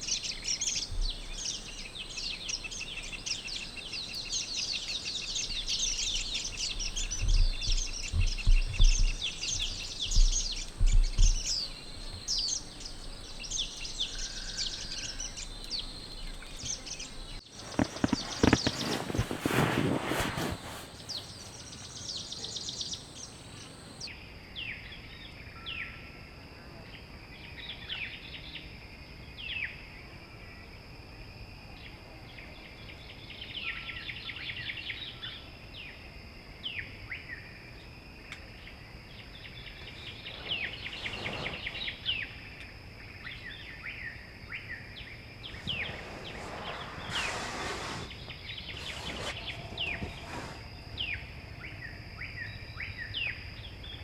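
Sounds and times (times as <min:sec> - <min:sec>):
birds chirping and trilling: 0:00.0 - 0:24.1, 0:48.2 - 0:51.9
faint background hiss: 0:00.0 - 0:54.0.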